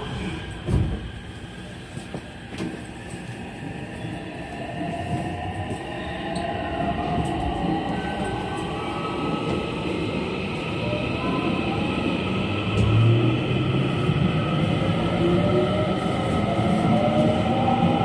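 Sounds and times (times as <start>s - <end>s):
train thump: 0.6s - 1.2s.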